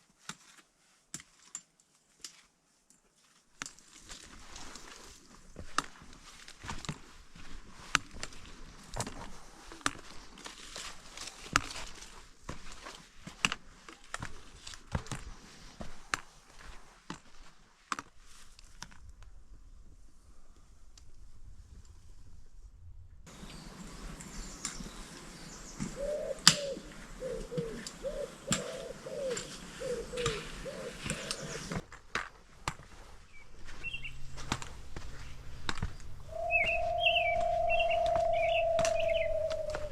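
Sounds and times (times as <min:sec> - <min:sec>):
footsteps crunching on trail: 0:03.1 - 0:18.6, 0:23.3 - 0:39.9
bird hooting coos: 0:25.6 - 0:31.8, 0:33.8 - 0:39.9
high bird chirps: 0:33.3 - 0:39.9.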